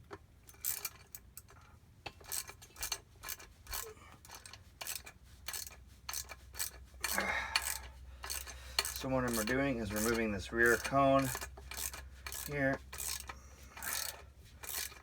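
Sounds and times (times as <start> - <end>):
metal tool clicks and clinks: 0.5 - 15.0.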